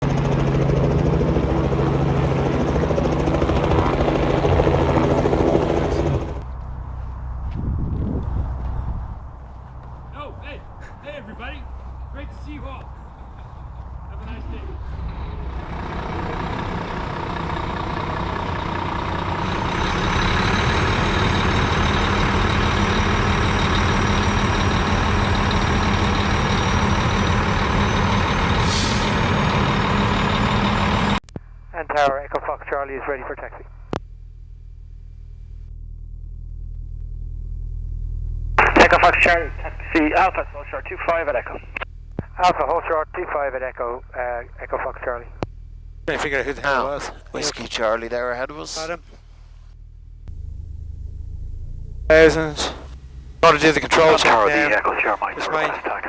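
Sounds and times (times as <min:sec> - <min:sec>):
propeller plane engine running: 0:00.0 - 0:31.8, 0:33.8 - 0:42.6, 0:44.1 - 0:56.0
high steady whine: 0:00.2 - 0:06.5, 0:33.6 - 0:43.4, 0:48.7 - 0:56.0.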